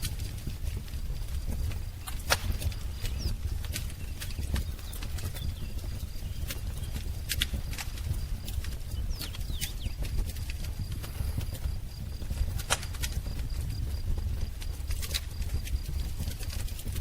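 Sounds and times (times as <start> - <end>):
wood fire crackling and popping: 0.0 - 17.0
faint bird chirps: 2.0 - 7.3, 8.8 - 10.1.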